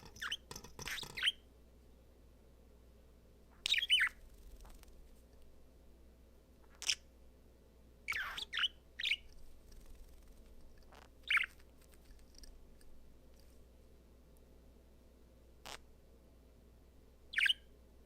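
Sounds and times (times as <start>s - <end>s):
budgerigar chirping: 3.6s - 4.2s, 6.7s - 7.0s, 8.1s - 9.3s, 10.9s - 11.6s, 17.3s - 17.7s.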